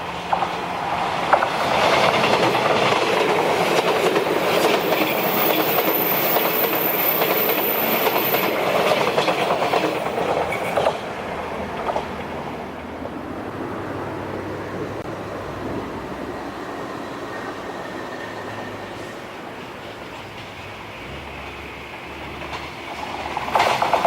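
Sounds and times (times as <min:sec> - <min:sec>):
wheels clattering over rail joints: 0:00.0 - 0:13.3, 0:17.4 - 0:24.0
train passing at speed: 0:00.0 - 0:24.0.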